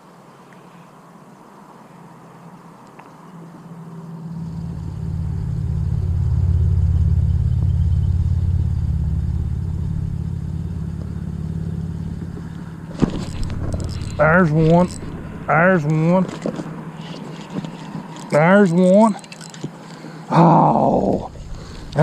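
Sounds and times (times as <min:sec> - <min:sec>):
vehicle engine passing by: 0:03.7 - 0:18.9, 0:21.0 - 0:22.0.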